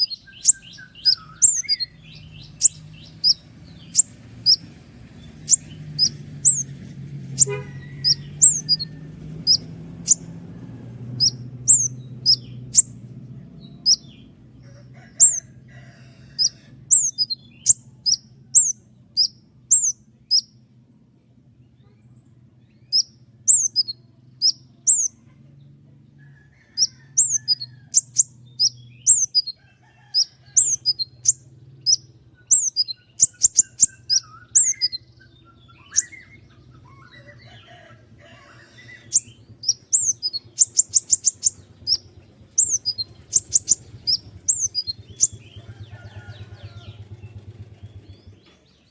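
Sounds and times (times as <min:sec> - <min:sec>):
bird singing high chirps: 0:00.0 - 0:06.7, 0:07.3 - 0:10.4, 0:11.0 - 0:13.0, 0:13.6 - 0:15.5, 0:16.4 - 0:20.6, 0:22.7 - 0:25.2, 0:26.6 - 0:37.8, 0:38.8 - 0:48.9.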